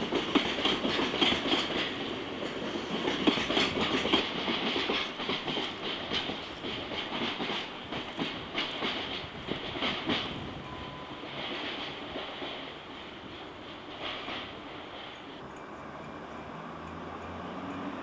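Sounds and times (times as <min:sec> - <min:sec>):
wheels clacking over rail joints: 0:00.0 - 0:18.0.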